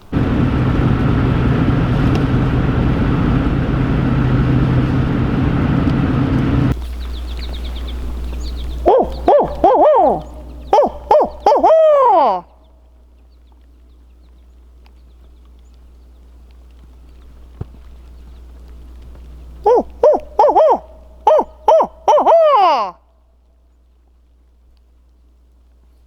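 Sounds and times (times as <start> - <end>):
truck running: 0.0 - 6.8
owl hoots from a call: 8.8 - 12.5, 19.6 - 23.0.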